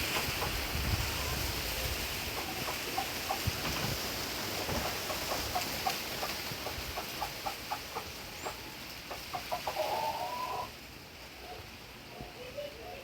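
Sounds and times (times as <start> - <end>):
bird clucking calls: 0.0 - 10.7
background hiss: 0.0 - 13.0.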